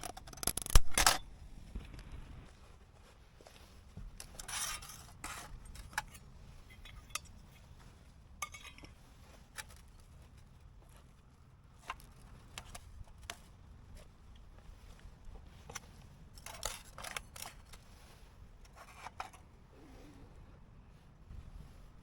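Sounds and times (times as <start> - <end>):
rustle: 0.7 - 22.0
metal cookware clinking: 8.4 - 8.9.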